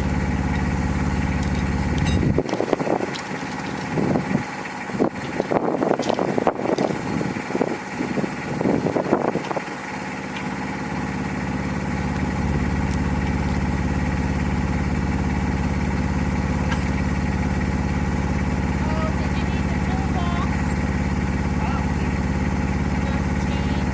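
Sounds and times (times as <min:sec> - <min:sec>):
brief rattle: 0:00.0 - 0:04.3
engine running steadily: 0:00.0 - 0:23.9.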